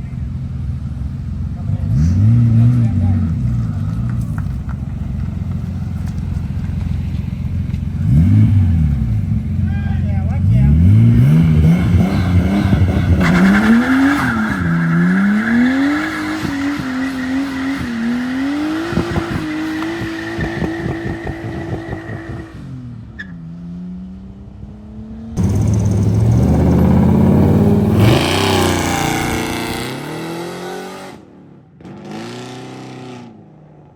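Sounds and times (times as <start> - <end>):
car engine revving hard: 1.6 - 4.0, 8.0 - 9.6, 10.4 - 22.8, 25.3 - 33.4
tyres squealing: 11.6 - 22.6.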